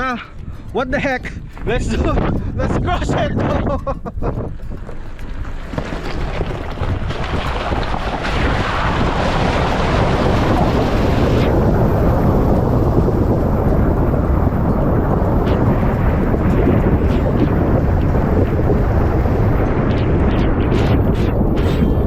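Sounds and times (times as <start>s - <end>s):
water rushing and splashing: 5.4s - 22.0s.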